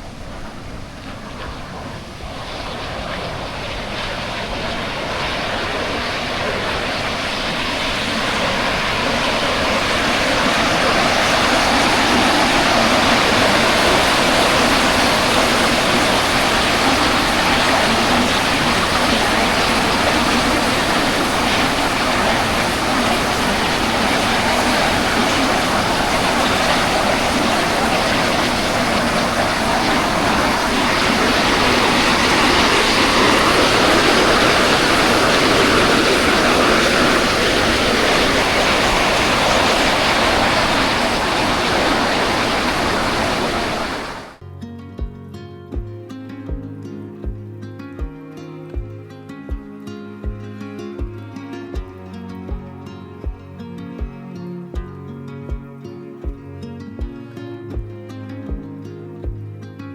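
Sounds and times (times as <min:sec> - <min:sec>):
waterfall rushing: 0:02.1 - 0:44.4.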